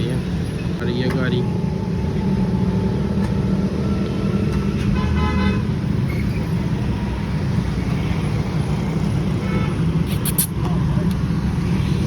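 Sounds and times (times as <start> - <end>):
car engine rumbling: 0.0 - 12.0
car horn tooting: 4.8 - 5.7.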